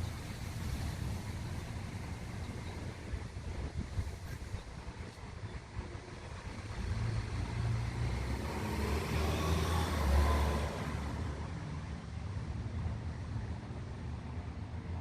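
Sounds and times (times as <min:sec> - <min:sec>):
rain hiss: 0:00.0 - 0:05.4.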